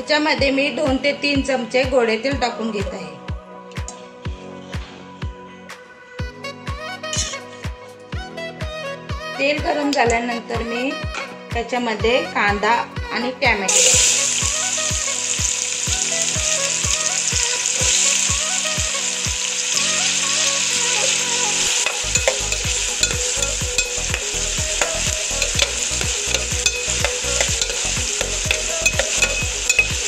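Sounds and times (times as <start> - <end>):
onion and tomato sizzling: 13.7 - 30.0
spoon scraping against pot: 21.8 - 30.0.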